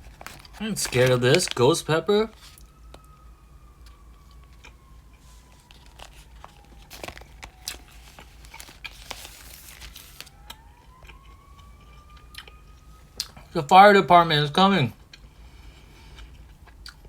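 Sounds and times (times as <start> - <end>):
plastic packaging crinkling and tearing: 0.0 - 3.1, 3.8 - 11.4.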